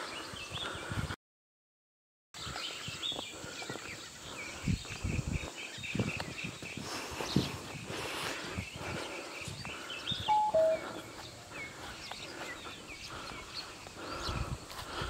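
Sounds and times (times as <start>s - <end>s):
birds chirping: 0.0s - 1.1s, 2.4s - 15.0s
two-note falling whistle: 10.3s - 10.8s.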